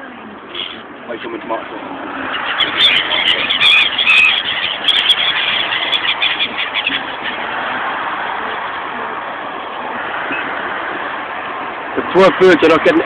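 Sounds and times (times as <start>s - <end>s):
birds squabbling with short high cries: 0.0s - 1.0s, 1.8s - 10.8s
steady background noise: 0.0s - 13.0s.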